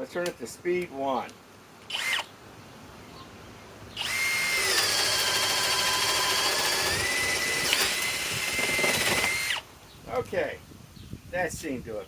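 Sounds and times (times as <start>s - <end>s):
cordless drill whining: 1.9s - 2.3s, 4.0s - 9.7s.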